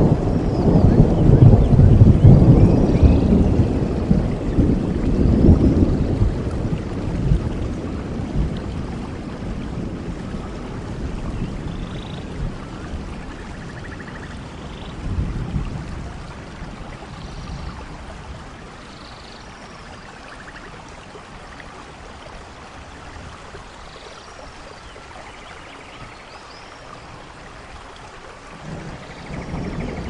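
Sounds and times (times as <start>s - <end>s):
low thunder rumble: 0.0s - 18.8s, 28.5s - 30.0s
rain hissing: 0.0s - 30.0s.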